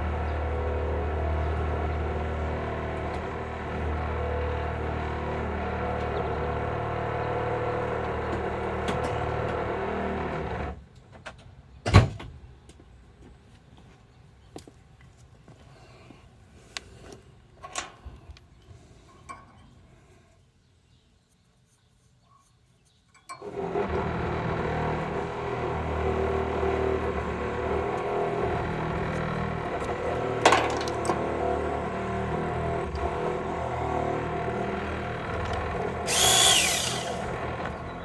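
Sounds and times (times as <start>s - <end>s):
power press tool running: 0.0s - 10.8s, 23.4s - 38.0s.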